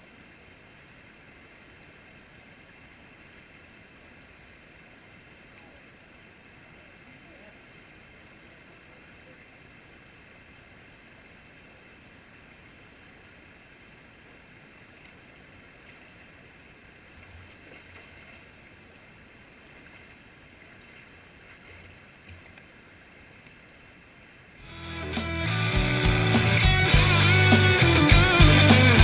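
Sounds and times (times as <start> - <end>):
flowing creek water: 0.0 - 29.0.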